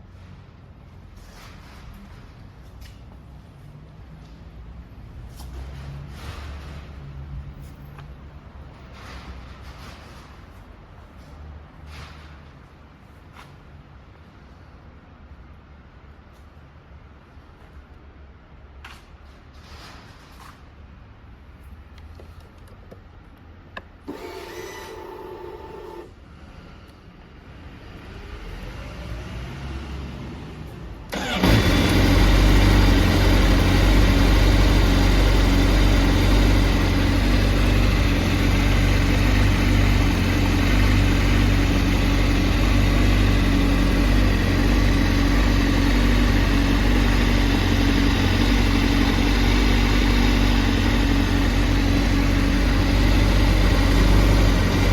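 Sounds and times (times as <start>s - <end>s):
motorcycle engine starting and idling: 31.0s - 54.9s.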